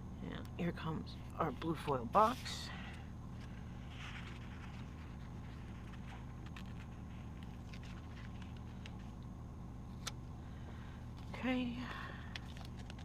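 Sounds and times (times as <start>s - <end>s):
steady low hum: 0.0s - 13.0s
sticker sheet rustling: 3.4s - 9.2s.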